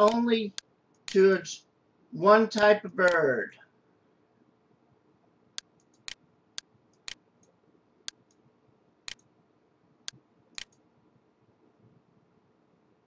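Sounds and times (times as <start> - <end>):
computer mouse clicking: 5.6 - 8.4, 9.1 - 9.3, 10.1 - 10.9.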